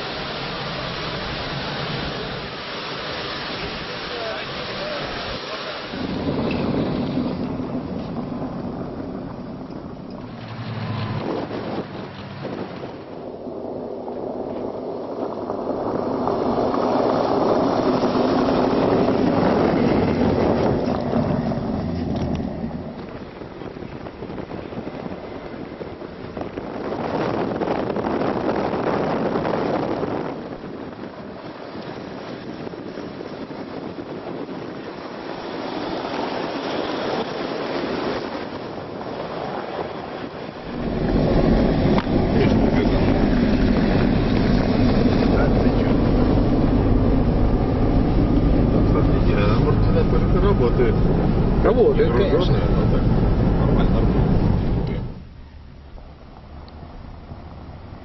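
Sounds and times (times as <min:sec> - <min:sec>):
steady rushing noise: 0:00.0 - 0:58.0
deep rumble: 0:03.6 - 0:58.0
truck driving past: 0:06.0 - 0:13.1.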